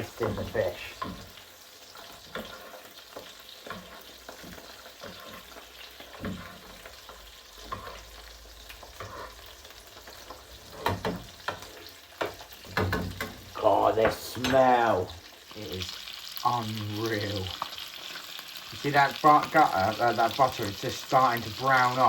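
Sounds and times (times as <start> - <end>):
spoon scraping a pan: 0.0 - 14.9
fish sizzling in oil: 0.0 - 22.0.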